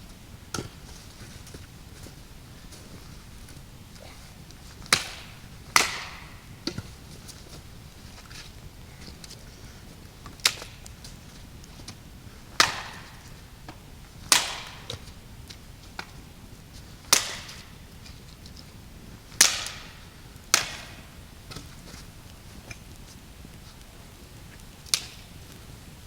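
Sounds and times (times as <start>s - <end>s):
axe chopping wood: 4.8s - 6.9s, 12.6s - 15.2s, 17.1s - 17.7s, 19.4s - 21.2s.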